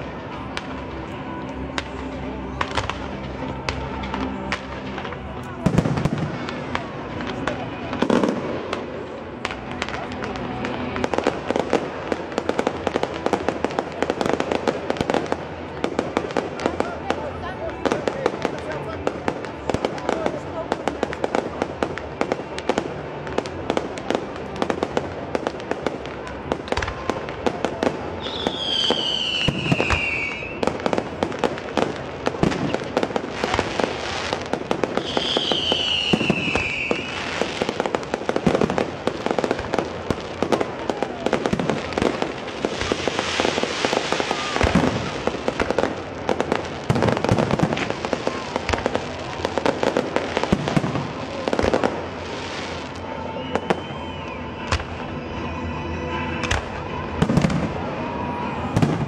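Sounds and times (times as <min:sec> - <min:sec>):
fireworks bangs and crackling: 0:00.0 - 0:59.0
firework whistles falling in pitch: 0:28.2 - 0:30.6, 0:35.0 - 0:37.5, 0:53.0 - 0:59.0.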